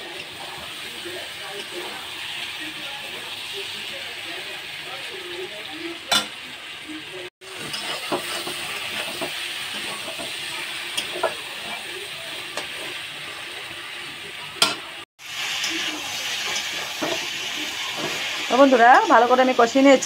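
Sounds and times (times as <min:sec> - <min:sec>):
curry sizzling in a pan: 0:00.0 - 0:20.0
spatula stirring and scraping: 0:07.4 - 0:14.7, 0:15.4 - 0:18.5.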